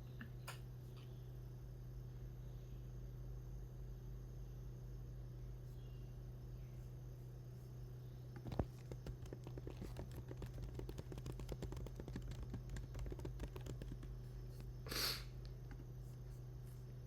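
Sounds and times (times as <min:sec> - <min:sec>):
steady low hum: 0:00.0 - 0:17.0
typing on keyboard: 0:08.4 - 0:14.2.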